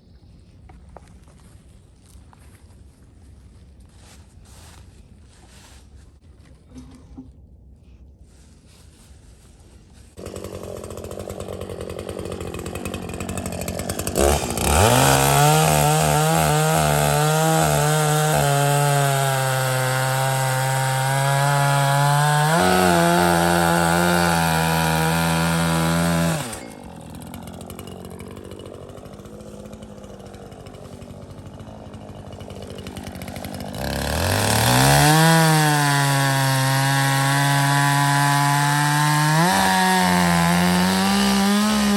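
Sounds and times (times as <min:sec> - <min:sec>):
chainsaw revving and cutting: 0:10.1 - 0:41.9.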